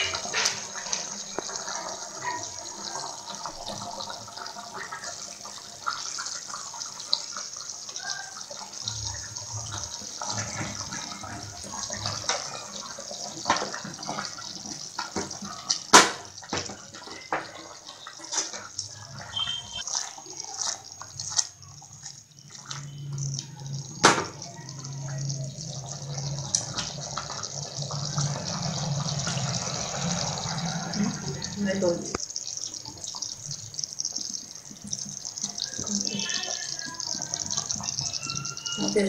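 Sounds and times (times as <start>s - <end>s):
curry simmering in a pot: 0.0s - 39.0s.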